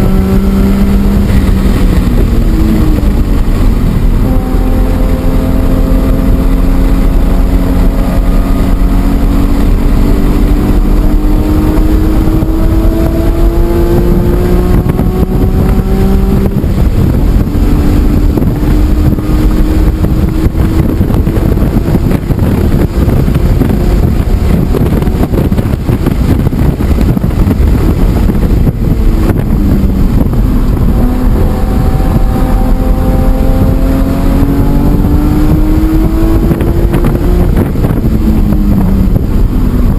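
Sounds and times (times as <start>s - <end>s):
race car engine revving: 0.0s - 39.9s
wind buffeting microphone: 0.0s - 39.9s.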